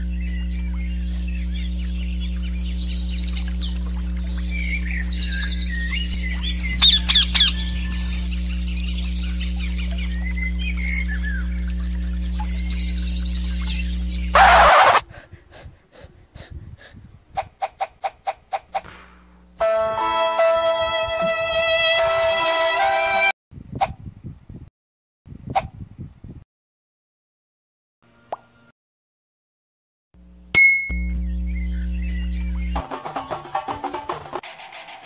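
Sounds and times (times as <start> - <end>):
songbirds chirping and trilling: 0.0 - 15.6, 31.1 - 33.8
steady low hum: 0.0 - 17.3, 18.7 - 20.0, 30.2 - 33.0.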